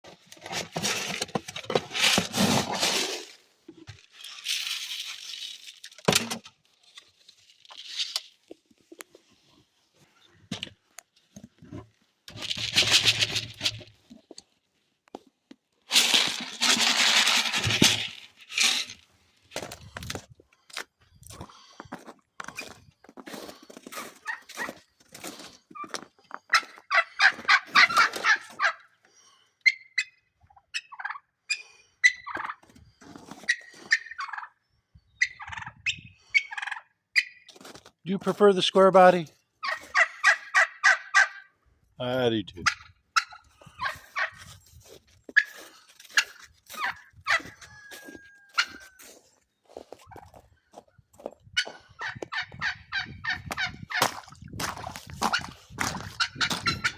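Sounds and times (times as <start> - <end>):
rustling noise: 15.8 - 20.6, 43.6 - 50.5
turkey gobbling: 26.5 - 28.8, 29.6 - 32.6, 33.5 - 34.6, 35.2 - 37.5, 39.6 - 41.5, 42.6 - 44.5, 45.4 - 49.2, 51.6 - 54.0, 55.2 - 56.9.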